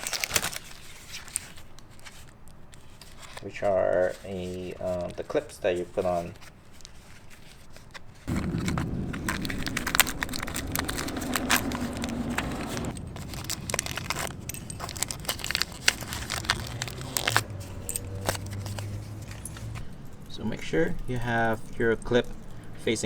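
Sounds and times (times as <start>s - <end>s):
plastic parts clicking and crackling: 0.0s - 20.4s
steady low rumble: 8.3s - 22.9s.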